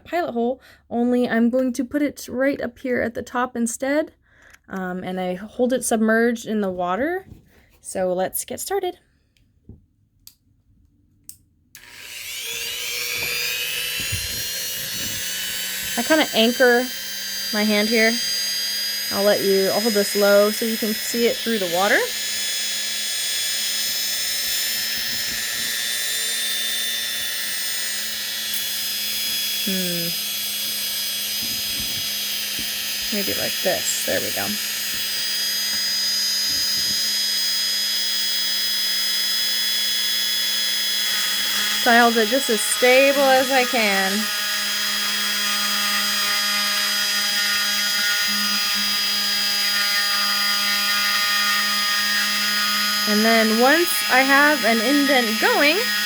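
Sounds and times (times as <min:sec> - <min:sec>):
rotary tool grinding whine: 0:11.8 - 0:56.0.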